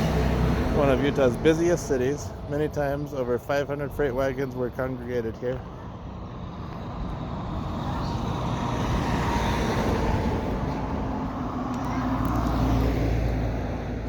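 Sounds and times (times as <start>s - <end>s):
vehicle driving past: 0.0s - 2.8s, 6.2s - 14.0s.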